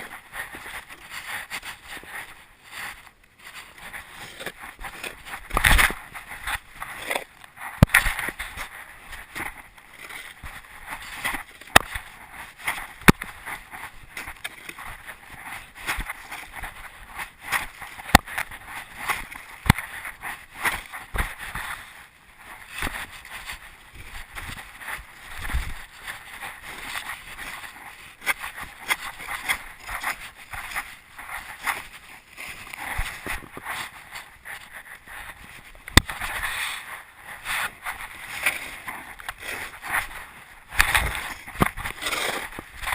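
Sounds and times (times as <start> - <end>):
toy truck rattling and scraping: 40.8 - 42.9.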